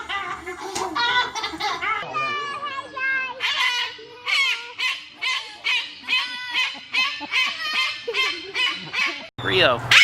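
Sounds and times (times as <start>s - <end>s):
bird calling: 3.4s - 10.0s.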